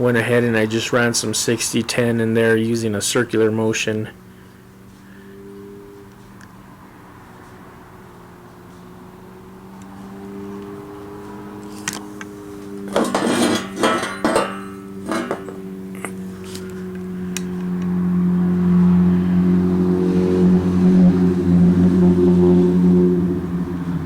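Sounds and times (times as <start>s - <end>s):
steel plates clattering: 12.8s - 15.8s.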